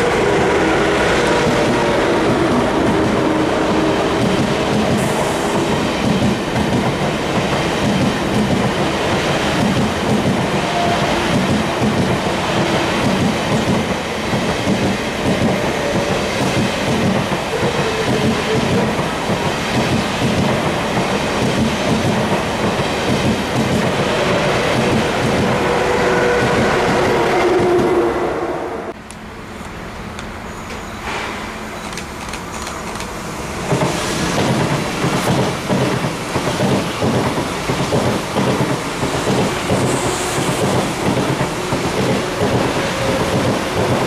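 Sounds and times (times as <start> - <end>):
train wheels rumbling on rails: 0.0 - 44.0
clickety-clack over rail joints: 4.1 - 25.5, 31.8 - 44.0.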